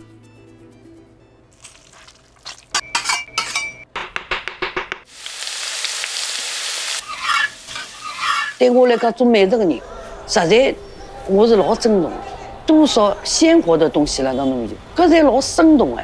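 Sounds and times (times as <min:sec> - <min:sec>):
meat sizzling: 0:01.5 - 0:02.8, 0:05.1 - 0:09.0
scraping stirring in a wok: 0:07.0 - 0:09.2.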